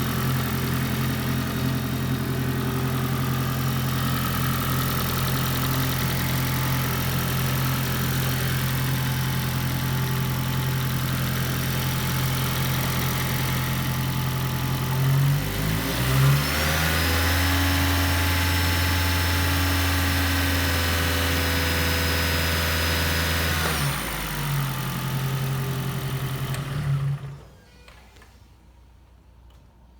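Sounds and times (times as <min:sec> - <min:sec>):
car engine idling: 0:00.0 - 0:15.5.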